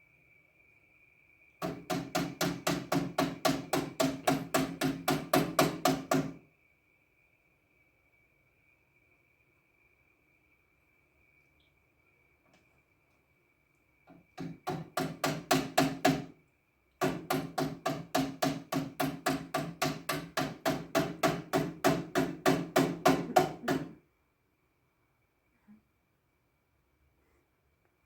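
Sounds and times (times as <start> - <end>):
rapid even knocking: 1.6 - 6.4, 14.4 - 16.3, 17.0 - 24.0.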